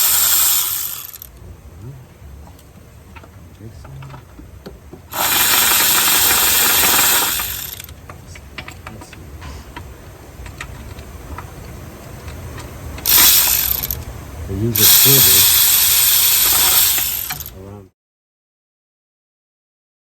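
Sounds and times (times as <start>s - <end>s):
hand tools clicking: 0.0s - 1.4s, 5.1s - 9.2s, 12.3s - 14.1s, 14.8s - 17.6s
loud steady hiss: 0.0s - 2.4s, 5.1s - 17.8s.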